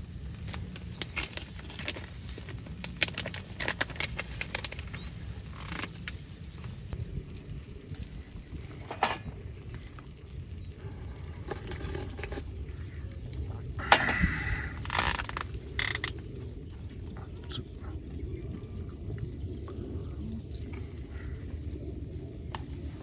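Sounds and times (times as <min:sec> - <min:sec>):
low steady rumble: 0:00.0 - 0:23.0.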